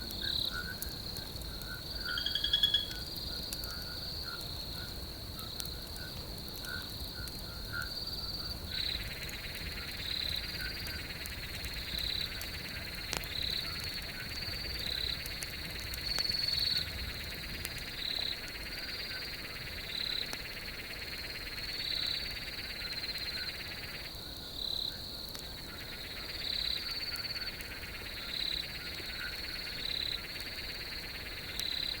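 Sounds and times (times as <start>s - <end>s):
insects trilling: 0.0s - 32.0s
short lower insect calls: 1.6s - 4.1s.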